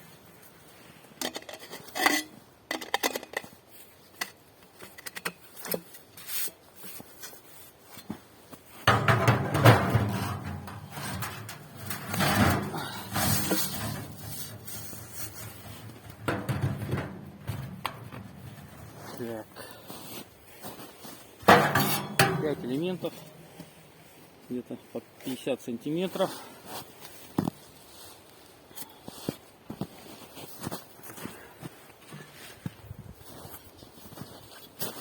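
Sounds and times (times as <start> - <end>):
sheet metal clinks and knocks: 8.9 - 19.2, 21.5 - 23.7
metal scraping and rattling: 8.9 - 19.8, 21.4 - 24.1.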